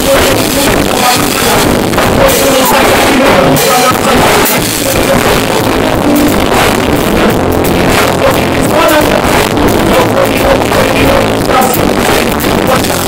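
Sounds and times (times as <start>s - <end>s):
drum kit beat: 0.0s - 13.0s
live rock band playing: 0.0s - 13.0s.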